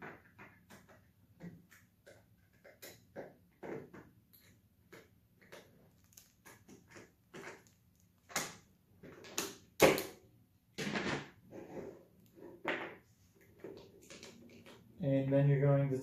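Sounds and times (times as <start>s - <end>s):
plastic parts clicking and knocking: 0.0s - 10.2s, 12.5s - 15.0s.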